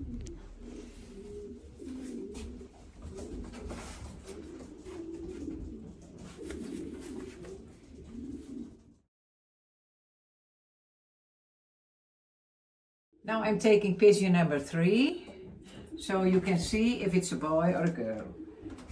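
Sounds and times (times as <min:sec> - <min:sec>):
pigeons cooing: 0:00.0 - 0:09.1, 0:14.8 - 0:18.9.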